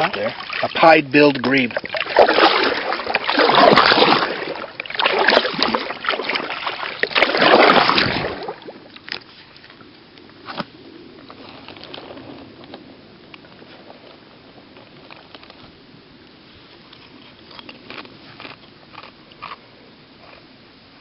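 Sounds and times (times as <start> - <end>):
kayak paddle strokes splashing: 0.0 - 9.9
water sloshing: 0.0 - 9.9.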